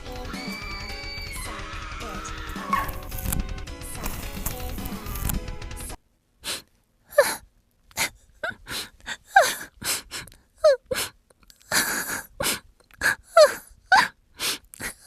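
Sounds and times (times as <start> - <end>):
person gasping and yelping: 6.4 - 15.0.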